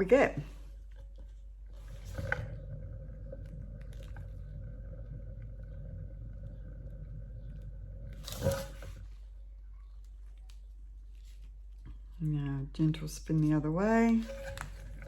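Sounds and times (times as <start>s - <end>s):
tile spinner whirring: 0.0s - 9.4s, 13.5s - 15.0s
faint steady hum: 0.0s - 15.0s.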